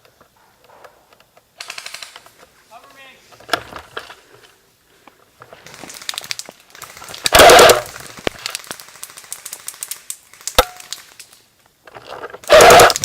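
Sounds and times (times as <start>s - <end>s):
airsoft gun full-auto burst: 1.6s - 2.2s, 5.6s - 11.4s, 12.4s - 13.0s
loud crack: 5.7s - 11.4s, 12.4s - 13.0s
sharp clicks: 5.7s - 11.4s.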